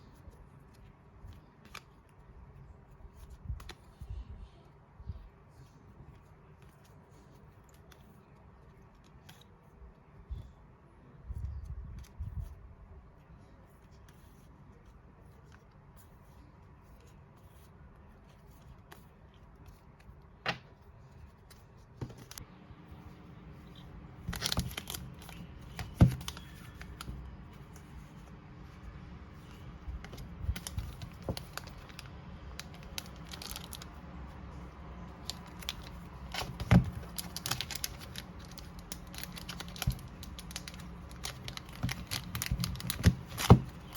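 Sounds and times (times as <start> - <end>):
paper and plastic crinkling: 23.7 - 28.2, 29.3 - 43.9.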